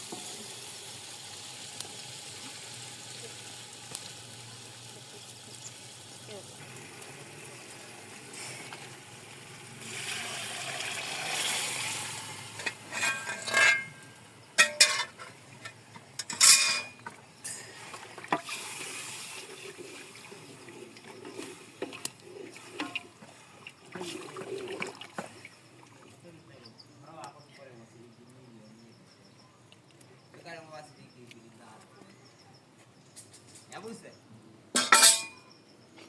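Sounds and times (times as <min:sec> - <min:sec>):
hiss: 0:06.8 - 0:08.9
metal pots knocking and clattering: 0:12.4 - 0:18.6, 0:22.8 - 0:23.2, 0:34.8 - 0:35.4
utensils clinking and scraping: 0:12.6 - 0:17.6, 0:34.8 - 0:35.4.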